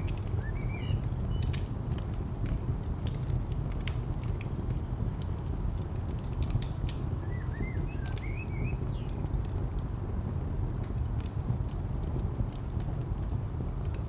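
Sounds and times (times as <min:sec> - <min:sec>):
bird chirps: 0:00.0 - 0:02.2, 0:07.2 - 0:09.5
distant traffic rumble: 0:00.0 - 0:14.0
wood fire crackling: 0:00.0 - 0:14.0.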